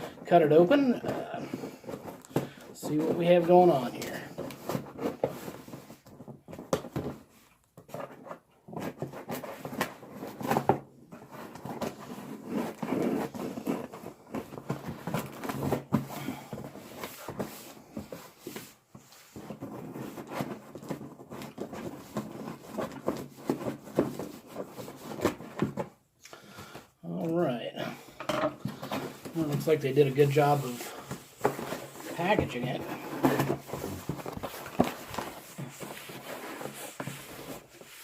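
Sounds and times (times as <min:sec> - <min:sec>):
packaging rustling: 0:28.6 - 0:38.0.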